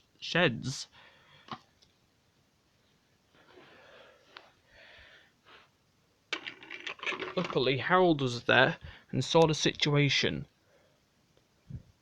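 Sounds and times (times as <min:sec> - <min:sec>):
soft breathing: 0:03.3 - 0:05.8.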